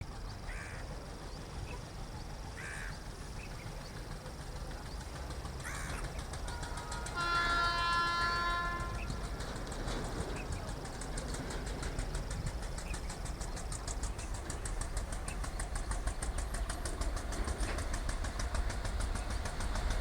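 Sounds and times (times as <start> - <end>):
crows cawing: 0.5 - 0.8, 2.6 - 3.0, 5.6 - 7.3
locomotive horn blast: 6.5 - 9.3.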